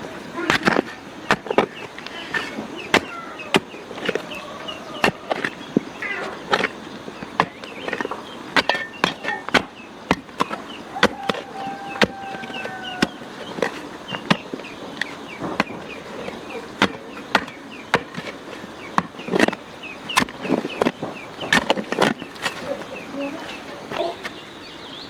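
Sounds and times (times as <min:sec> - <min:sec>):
sharp knocks: 0:05.0 - 0:19.6.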